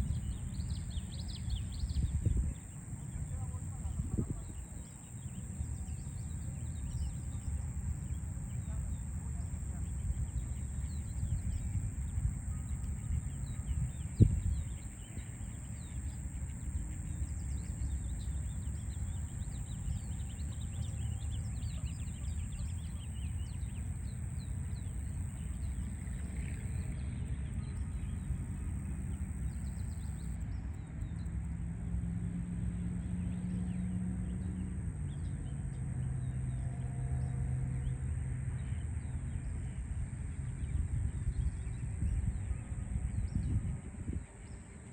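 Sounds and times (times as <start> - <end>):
city traffic rumble: 0.0 - 30.4
low engine drone: 0.0 - 43.6
small birds chirping: 27.8 - 30.4.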